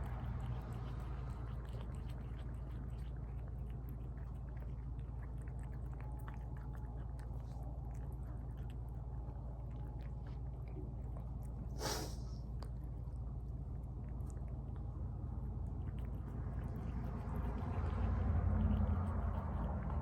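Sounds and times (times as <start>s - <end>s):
cats chewing wet food: 0.0s - 20.0s
cat snorting: 11.7s - 12.4s.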